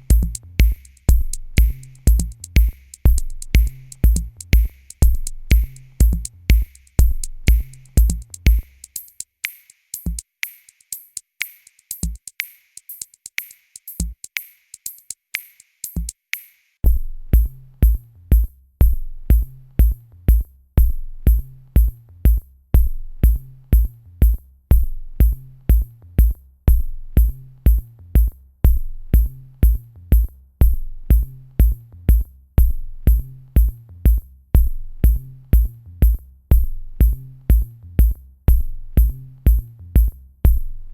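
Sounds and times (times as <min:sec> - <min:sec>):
electronic drum machine beat: 0:00.0 - 0:16.2, 0:27.2 - 0:40.7.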